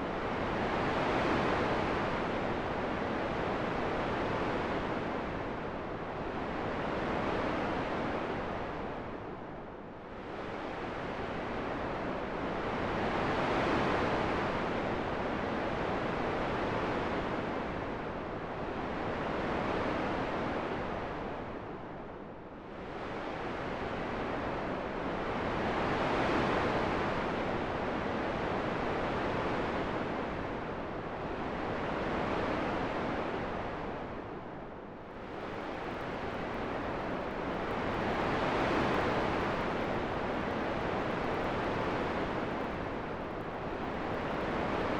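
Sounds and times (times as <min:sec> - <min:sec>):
rushing wind gusts: 0:35.0 - 0:44.9.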